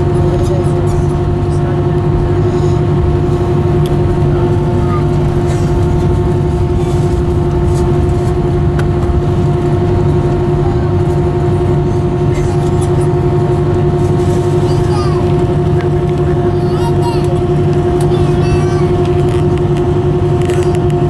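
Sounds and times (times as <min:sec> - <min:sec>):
jet engine rumble: 0:00.0 - 0:21.0
jet engine whine: 0:00.0 - 0:21.0.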